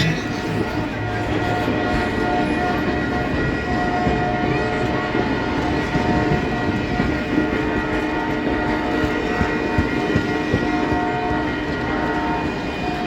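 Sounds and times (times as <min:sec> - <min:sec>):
train wheels clattering on rail: 0:00.0 - 0:13.0.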